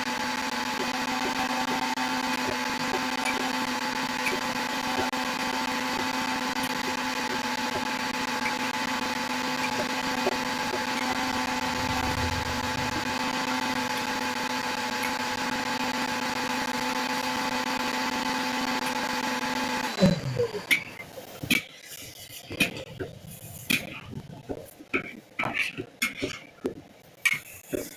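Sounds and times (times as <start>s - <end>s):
electric motor humming: 0.0s - 20.6s.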